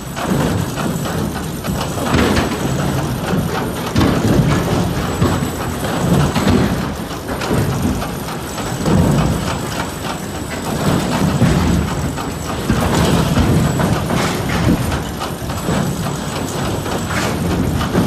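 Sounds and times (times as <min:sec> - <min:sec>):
wood-processing machinery clattering: 0:00.0 - 0:18.0.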